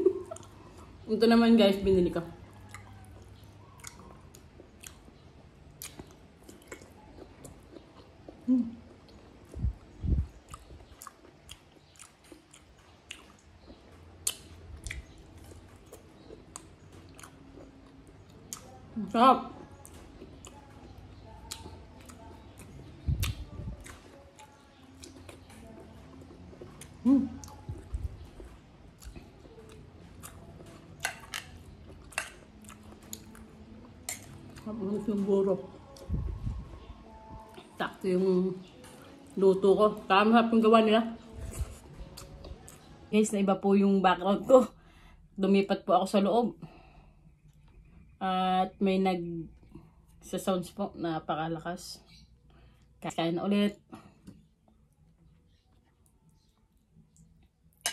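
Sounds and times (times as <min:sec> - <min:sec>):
wet chewing and mouth smacks: 0:02.4 - 0:18.8, 0:19.8 - 0:34.6, 0:41.4 - 0:43.0, 0:54.2 - 0:57.9.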